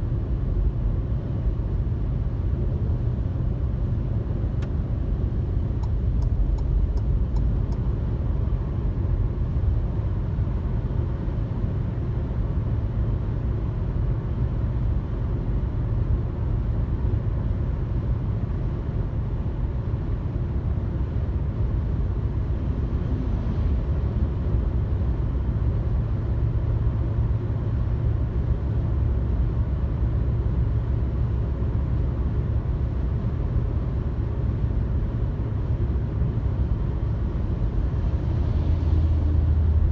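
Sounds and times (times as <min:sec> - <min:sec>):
car cabin road noise: 0:00.0 - 0:11.3.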